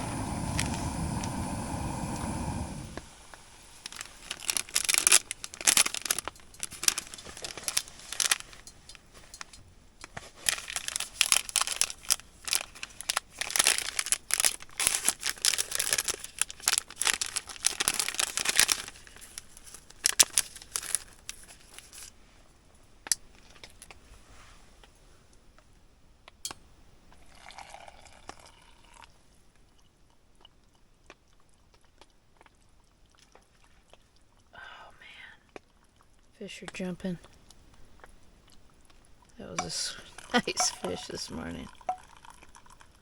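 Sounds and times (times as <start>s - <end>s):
plastic packaging crinkling: 3.7s - 22.1s, 39.6s - 42.5s.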